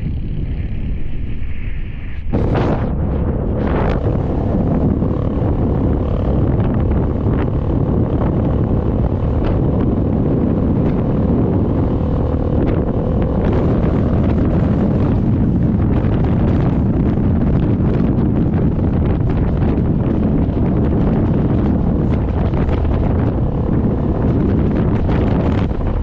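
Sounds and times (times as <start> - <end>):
moving vehicle road noise: 0.0 - 26.0
wind buffeting microphone: 0.0 - 26.0.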